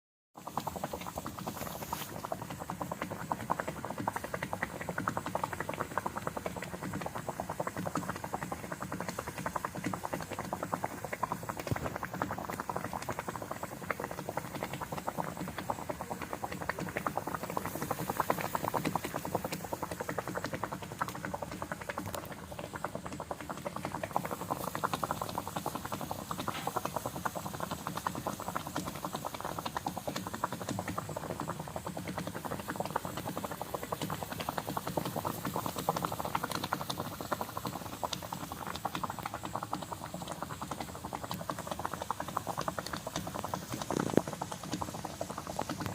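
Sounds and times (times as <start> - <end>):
food bubbling and sizzling: 0.3 - 45.9.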